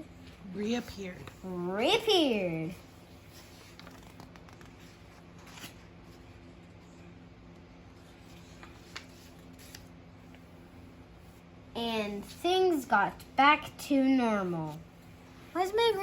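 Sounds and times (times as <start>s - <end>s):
low room hum: 0.0s - 16.0s
paper pages rustling: 0.2s - 10.5s.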